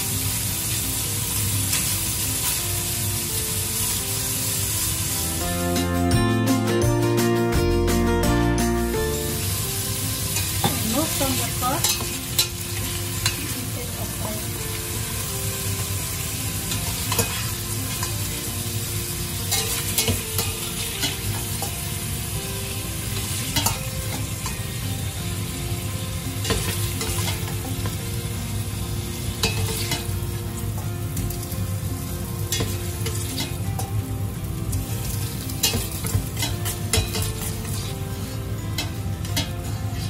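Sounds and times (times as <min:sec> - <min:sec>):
pork sizzling in hot oil: 0:00.0 - 0:06.8, 0:08.7 - 0:40.0.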